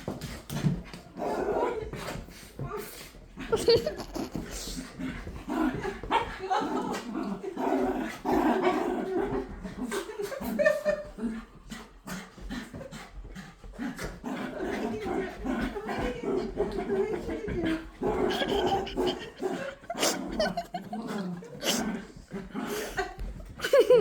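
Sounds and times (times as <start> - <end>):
dog whining and grumbling: 18.3 - 21.8.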